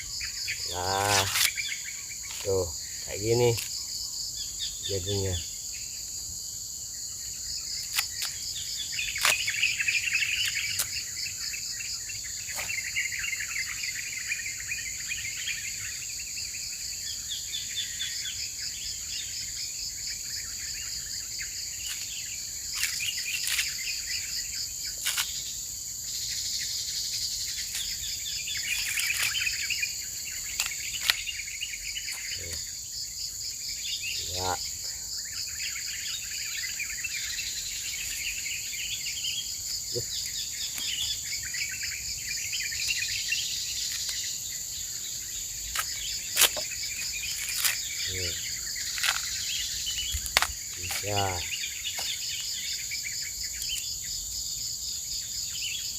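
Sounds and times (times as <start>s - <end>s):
birds twittering: 0.0s - 6.2s, 6.8s - 55.9s
insects trilling: 0.0s - 55.9s
sharp snaps and clicks: 7.9s - 8.4s.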